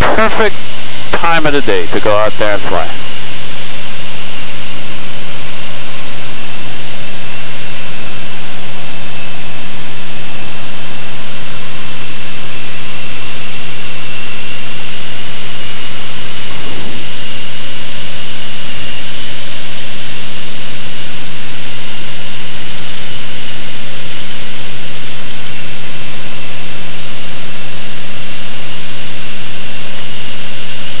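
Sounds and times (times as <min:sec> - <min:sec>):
plane engine and propeller drone: 0:00.0 - 0:00.6, 0:01.2 - 0:03.1
steady high tone: 0:00.0 - 0:03.1.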